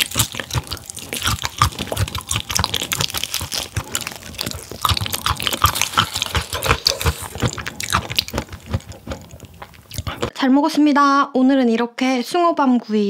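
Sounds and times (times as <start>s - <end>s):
person chewing food: 0.0s - 10.3s.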